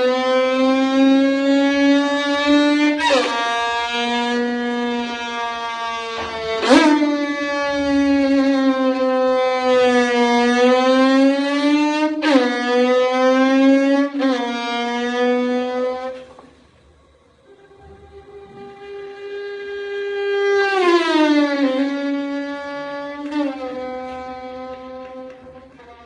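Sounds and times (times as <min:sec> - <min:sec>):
violin buzzy held note: 0:17.5 - 0:22.4.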